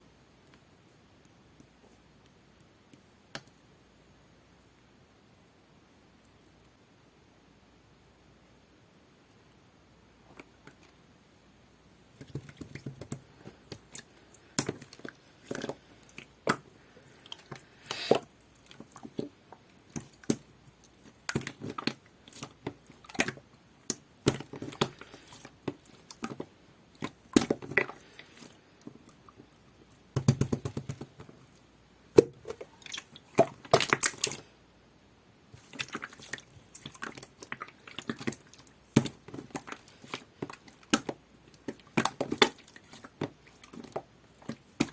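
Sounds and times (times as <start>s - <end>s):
slime squelching and popping: 12.1s - 34.5s, 35.5s - 44.9s.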